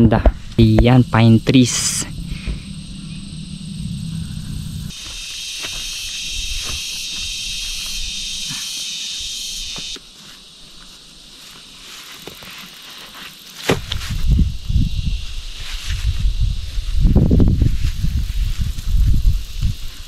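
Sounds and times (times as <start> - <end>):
forest ambience: 0.0 - 20.0
insects shrilling: 0.0 - 20.0.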